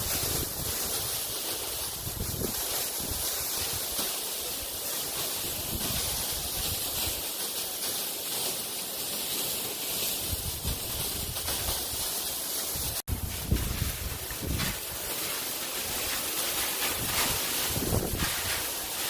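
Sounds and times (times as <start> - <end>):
wind buffeting microphone: 0.0 - 3.3, 12.9 - 15.0, 17.0 - 18.7.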